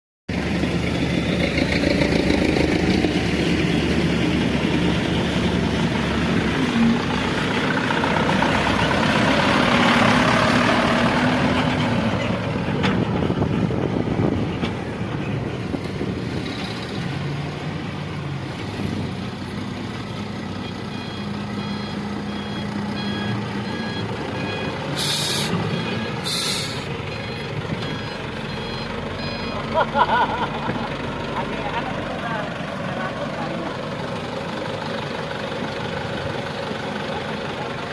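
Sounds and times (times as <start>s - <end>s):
diesel engines under load: 0.3s - 37.9s
reversing alarm beeping: 20.6s - 29.9s
air brake hisses: 25.0s - 25.5s, 26.2s - 26.9s.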